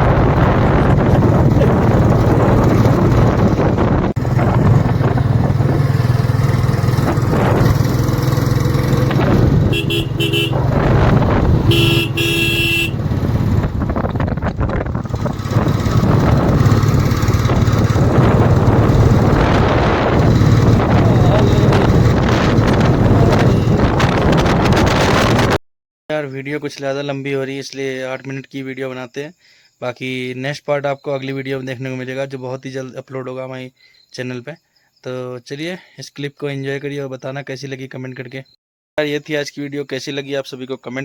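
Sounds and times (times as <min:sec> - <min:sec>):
wind noise on microphone: 0:00.0 - 0:06.2, 0:06.8 - 0:08.0, 0:09.1 - 0:25.6
motorcycle engine drone: 0:00.0 - 0:25.5
vehicle horn honking: 0:09.6 - 0:13.3, 0:23.4 - 0:23.8.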